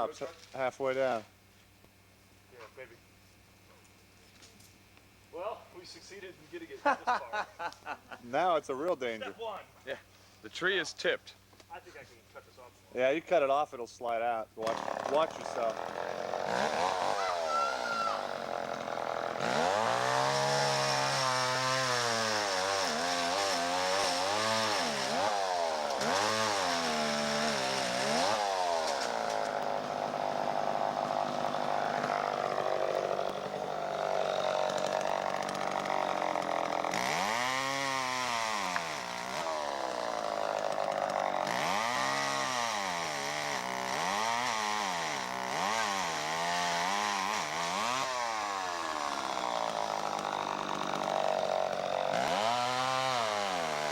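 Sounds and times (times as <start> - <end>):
chainsaw revving: 14.6 - 53.9.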